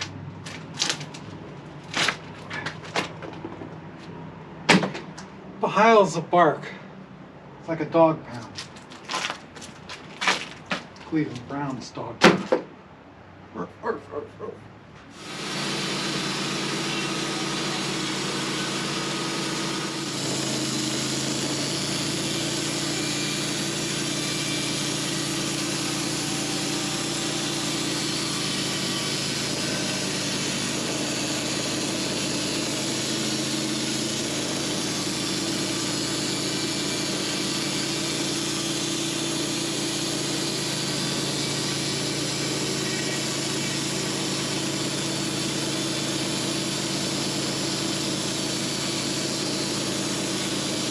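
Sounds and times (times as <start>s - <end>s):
sawmill engine running: 15.1s - 50.9s.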